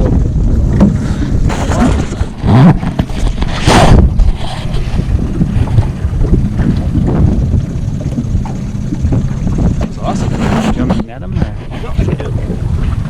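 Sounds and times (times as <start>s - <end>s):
boat motor running: 0.0s - 13.0s
wind buffeting microphone: 0.0s - 13.0s.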